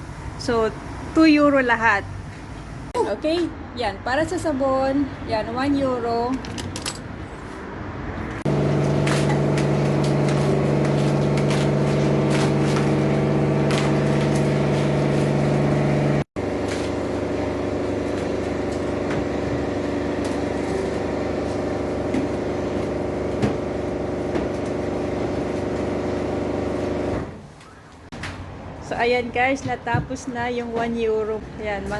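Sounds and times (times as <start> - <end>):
pressure washer pump hum: 8.5 - 27.6.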